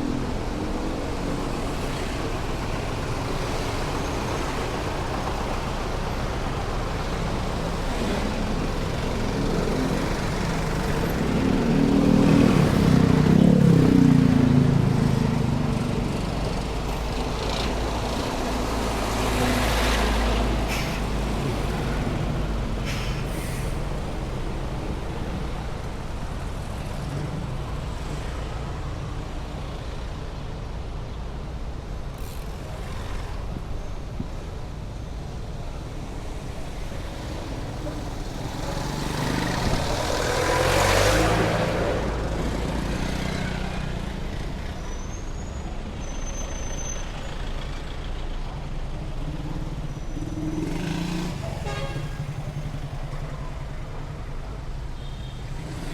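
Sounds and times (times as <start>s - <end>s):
heavy road traffic: 0.0s - 55.9s
large vehicle engine passing: 37.4s - 44.5s.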